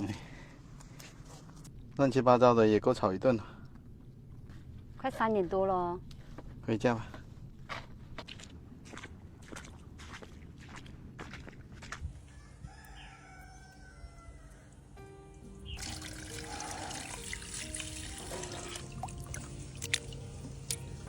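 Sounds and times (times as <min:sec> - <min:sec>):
footsteps: 0:03.7 - 0:12.3
faint rooster crow: 0:12.2 - 0:15.0
background music: 0:13.6 - 0:21.0
tap water running into sink: 0:15.8 - 0:20.1.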